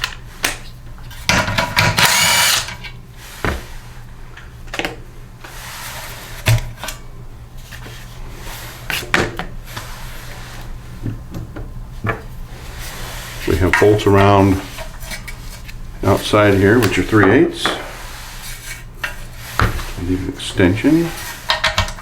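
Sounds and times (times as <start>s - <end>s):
power driver whirring: 1.8s - 2.9s.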